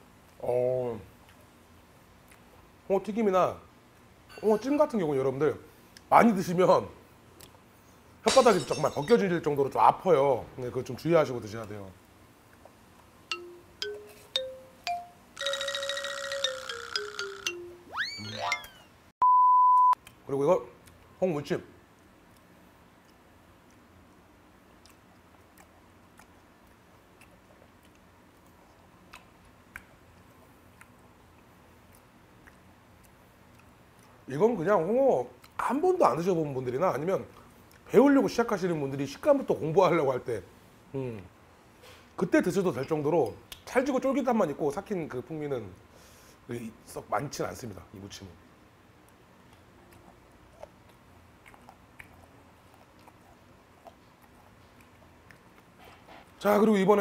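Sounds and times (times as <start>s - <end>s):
wet mouth clicks of chewing: 22.0s - 34.2s, 49.0s - 55.8s.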